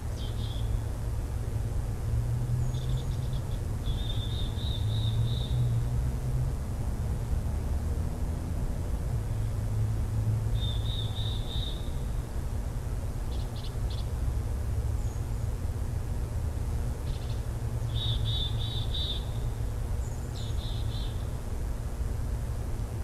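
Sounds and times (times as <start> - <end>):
bird high chirping: 10.6 - 12.0, 17.1 - 19.4.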